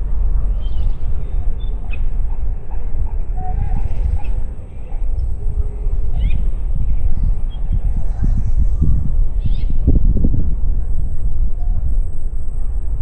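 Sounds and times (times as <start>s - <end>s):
wind rumbling on microphone: 0.0s - 13.0s
faint bird chirps: 0.5s - 9.9s.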